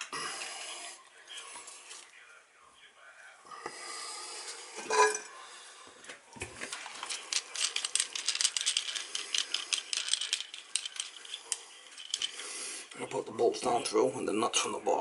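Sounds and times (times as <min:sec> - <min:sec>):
small metal hardware rattling: 0:07.0 - 0:12.4.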